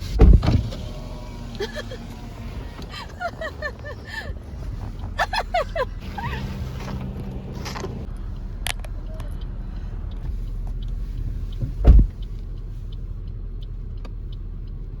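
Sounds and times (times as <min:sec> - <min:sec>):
car engine rumble: 0:00.0 - 0:15.0
loud dull thump: 0:11.7 - 0:12.1.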